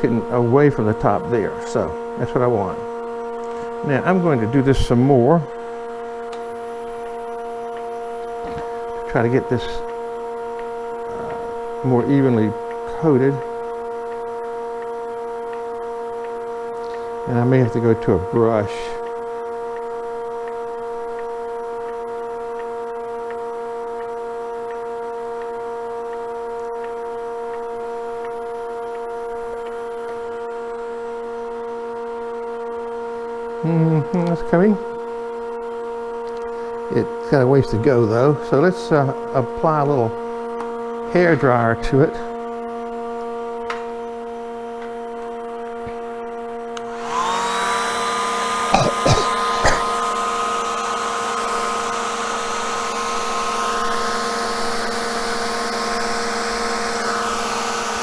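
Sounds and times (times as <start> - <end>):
electric motor hum: 0.0 - 33.0, 42.6 - 58.0
hair dryer blowing: 46.8 - 58.0
lathe motor humming: 46.8 - 58.0.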